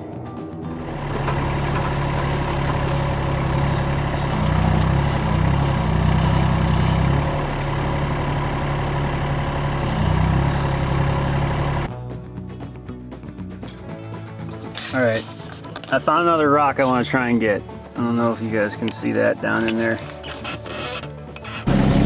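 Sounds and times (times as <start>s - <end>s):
mini excavator diesel engine: 0.8s - 11.9s, 19.1s - 22.0s.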